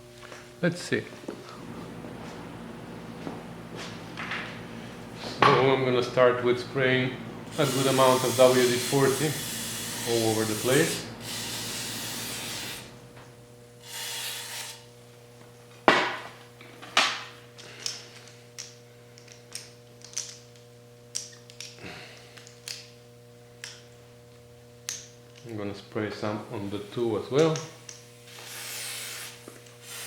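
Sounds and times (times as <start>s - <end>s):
faint steady hum: 0.0s - 30.0s
aerosol can spraying: 7.6s - 12.8s.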